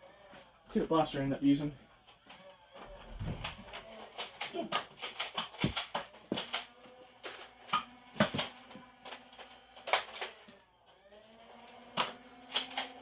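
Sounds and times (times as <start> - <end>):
plastic toy blaster clicks: 3.7 - 10.5, 12.0 - 13.0
small electric motor humming: 6.2 - 13.0.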